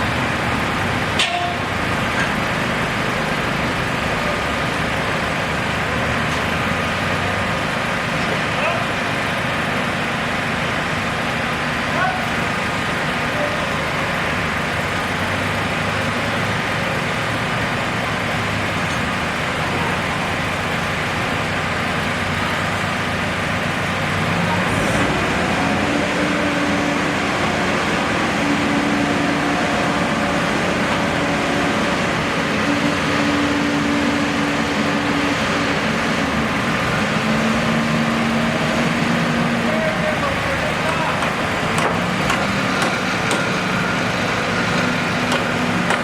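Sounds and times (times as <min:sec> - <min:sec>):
engines idling hum: 0:00.0 - 0:46.0
road traffic: 0:00.0 - 0:46.0.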